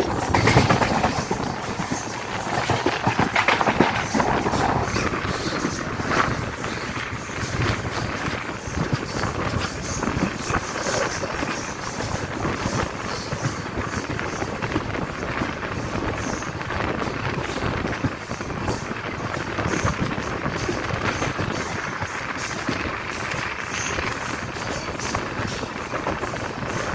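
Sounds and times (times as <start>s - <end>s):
wind rushing: 0.0s - 10.4s
train wheels rumbling and clattering: 0.0s - 26.9s
wind buffeting microphone: 0.0s - 26.9s.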